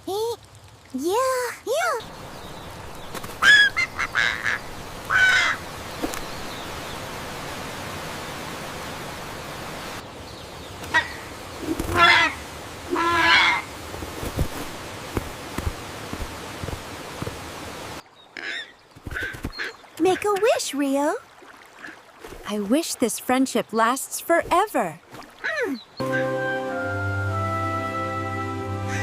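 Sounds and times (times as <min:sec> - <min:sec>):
rain hissing: 0:00.0 - 0:18.0
bird squawking and cawing: 0:03.3 - 0:05.7, 0:10.9 - 0:13.7, 0:18.4 - 0:20.3, 0:25.4 - 0:26.4.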